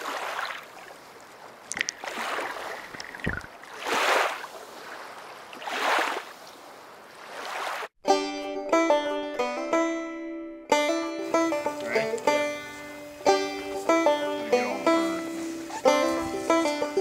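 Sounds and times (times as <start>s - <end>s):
feet sloshing through water: 0.0s - 7.9s.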